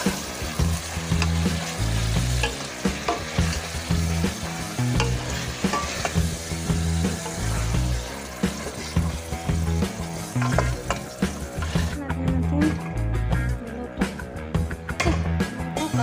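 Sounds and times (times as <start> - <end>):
chicken sizzling in a pot: 0.0 - 12.0, 14.5 - 16.0
spoon clicking against pot: 2.4 - 3.4, 5.0 - 6.2
wooden spoon stirring: 10.2 - 12.0.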